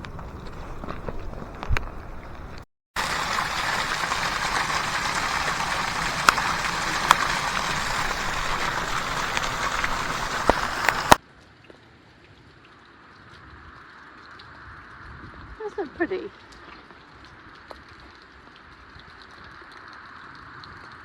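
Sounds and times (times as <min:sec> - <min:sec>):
steady rain: 0:00.0 - 0:11.2
raindrops tapping close by: 0:00.0 - 0:13.4.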